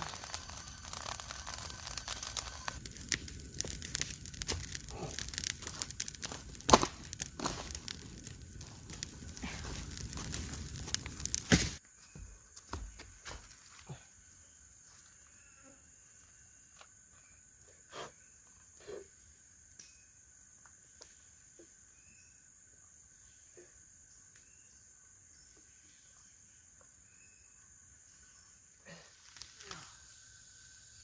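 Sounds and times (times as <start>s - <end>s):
forest insects droning: 0.0s - 31.0s
faint chirps: 13.8s - 31.0s.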